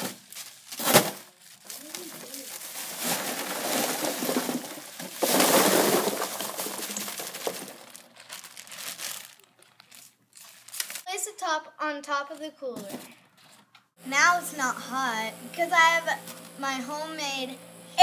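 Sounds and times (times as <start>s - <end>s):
plastic bag crinkling: 0.0s - 11.1s
ice rattling: 0.8s - 10.0s.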